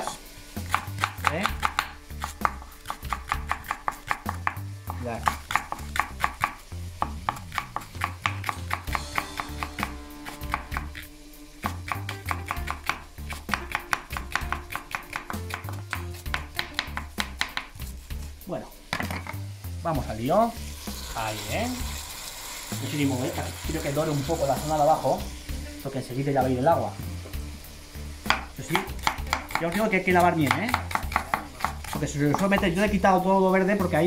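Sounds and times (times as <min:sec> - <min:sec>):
background music with bass: 0:00.0 - 0:22.1, 0:22.7 - 0:34.0
knife chopping on cutting board: 0:00.6 - 0:11.0, 0:11.7 - 0:17.9, 0:28.3 - 0:32.8.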